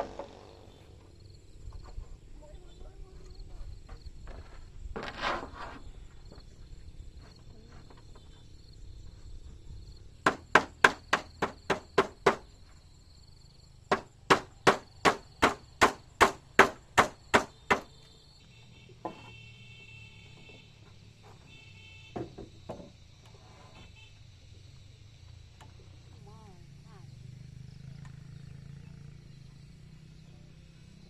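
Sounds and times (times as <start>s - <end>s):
hammer driving nails into wood: 10.3s - 12.5s, 13.9s - 17.9s.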